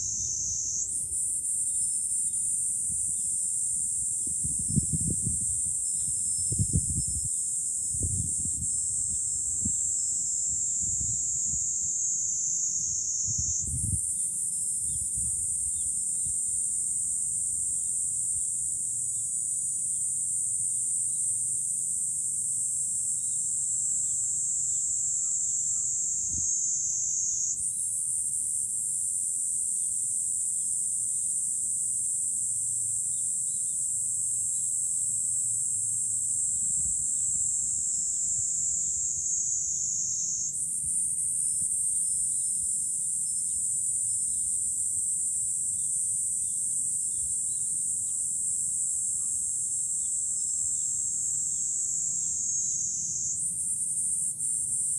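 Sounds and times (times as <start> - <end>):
cicadas droning: 0.0 - 54.9
low rumble of wind: 3.9 - 11.8.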